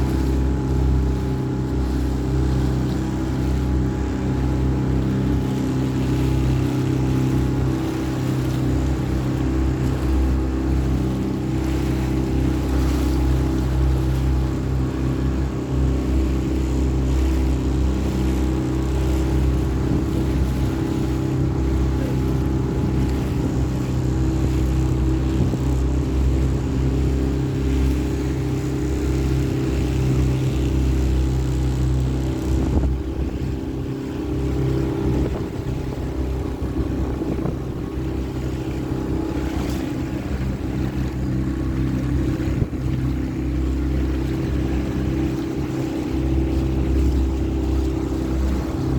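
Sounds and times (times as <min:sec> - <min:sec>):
motorboat engine running: 0:00.0 - 0:48.9
water noise: 0:00.0 - 0:48.9
wind noise: 0:32.4 - 0:38.2.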